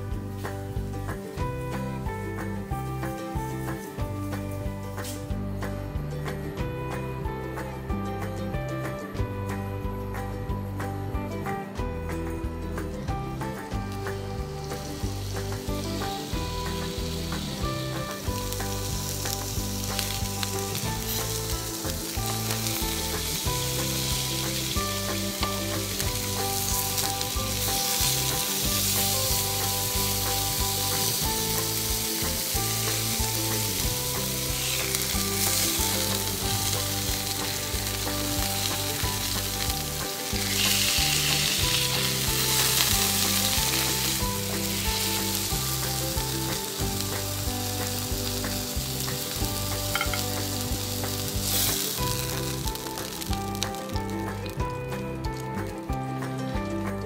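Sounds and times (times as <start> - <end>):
chicken sizzling in a frying pan: 0.0 - 5.6, 13.3 - 56.2.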